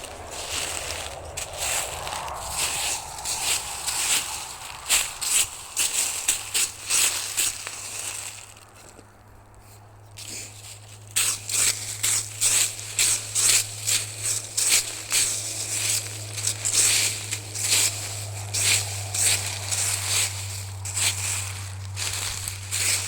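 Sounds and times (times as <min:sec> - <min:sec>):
footsteps crunching on forest floor: 0:00.0 - 0:09.2, 0:10.2 - 0:23.0.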